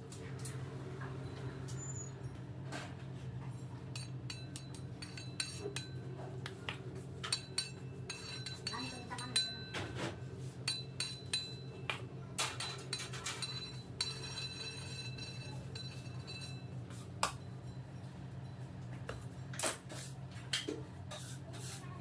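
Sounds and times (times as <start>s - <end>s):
steady low hum: 0.0s - 21.1s
metal utensils clinking: 12.4s - 16.7s.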